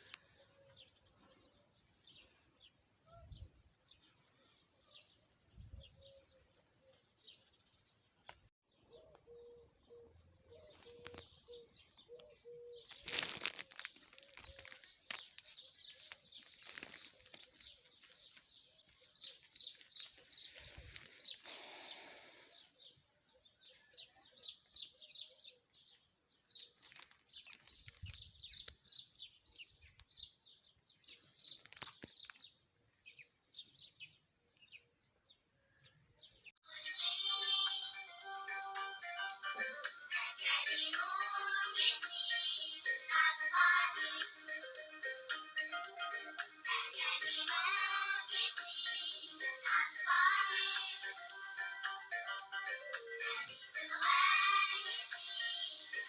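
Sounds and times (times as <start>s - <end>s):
small birds twittering: 0.0s - 36.6s.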